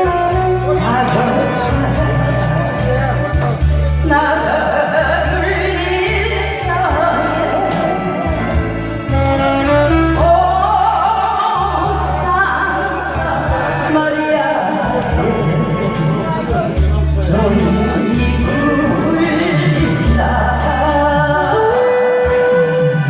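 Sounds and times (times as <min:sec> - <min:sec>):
backing music with drum beat: 0:00.0 - 0:23.0.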